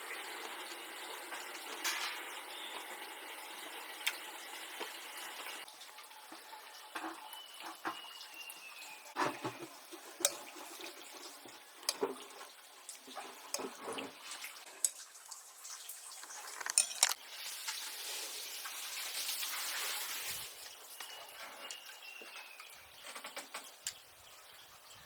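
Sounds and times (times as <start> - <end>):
hard objects clinking and knocking: 16.2 - 17.2.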